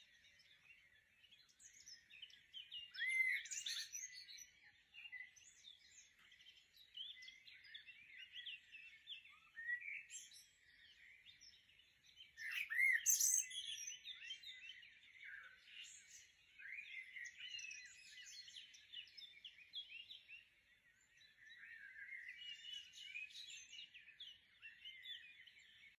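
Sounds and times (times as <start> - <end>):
small birds chirping and singing: 0.0 - 26.0.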